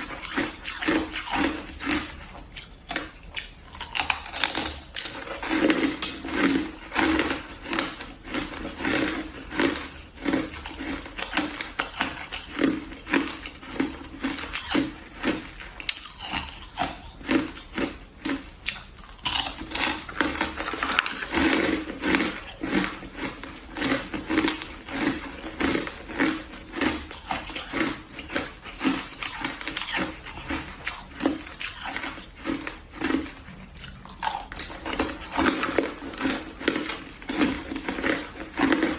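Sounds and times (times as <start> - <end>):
person crunching shaved ice: 0.0 - 38.9.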